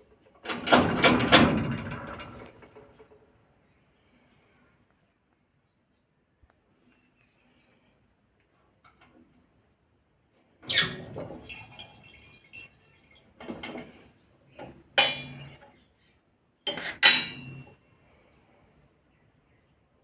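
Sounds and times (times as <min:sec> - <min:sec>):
steel tools clanking: 0:14.6 - 0:15.6, 0:16.7 - 0:17.7.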